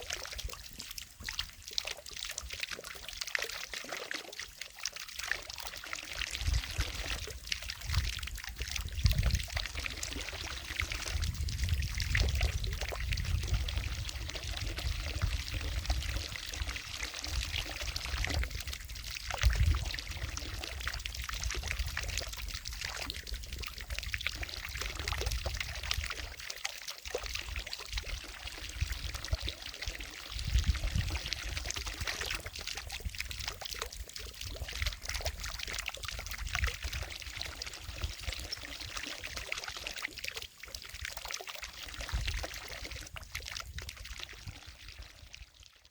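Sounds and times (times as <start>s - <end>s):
fountain water splashing: 0.0s - 23.9s.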